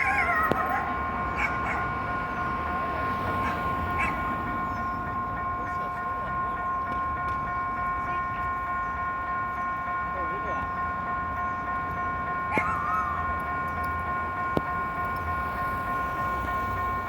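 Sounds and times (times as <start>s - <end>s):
level crossing electronic alarm tone: 0.0s - 6.9s, 10.4s - 17.0s.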